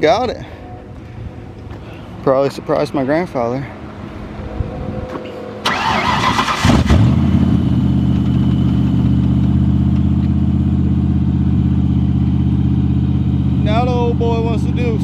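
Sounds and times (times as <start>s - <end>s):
car engine revving and idling: 3.8s - 15.0s
car starter cranking: 5.6s - 7.2s.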